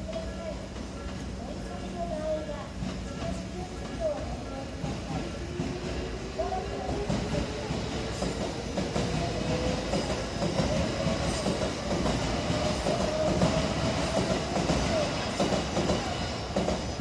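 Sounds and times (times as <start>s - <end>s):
electric train passing: 0.0s - 17.0s.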